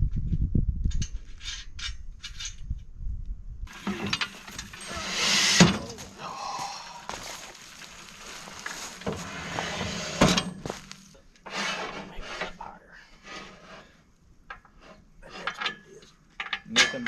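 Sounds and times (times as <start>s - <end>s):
metal parts clinking and thudding: 3.7s - 6.2s, 8.8s - 11.1s.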